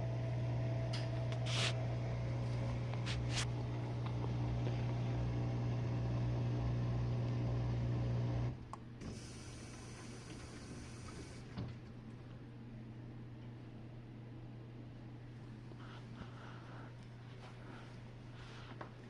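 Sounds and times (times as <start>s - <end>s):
dishwasher pump motor humming: 0.0s - 12.1s.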